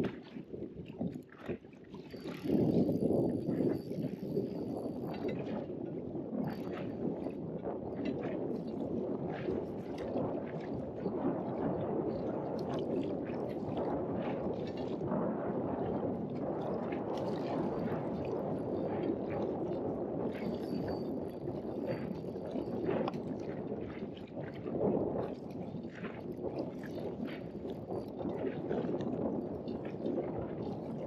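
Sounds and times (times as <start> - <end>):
wind buffeting microphone: 0.0 - 31.0
water lapping against boat: 15.8 - 31.0.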